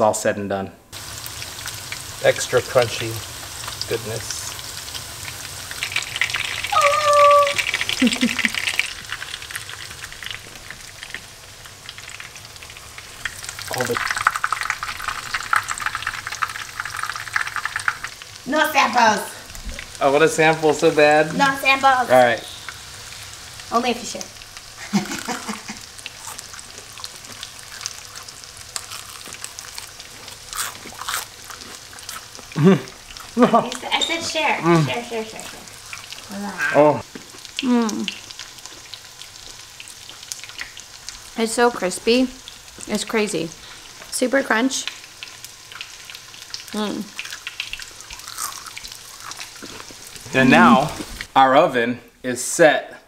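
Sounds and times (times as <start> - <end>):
fish fillets sizzling in oil: 0.9 - 51.3.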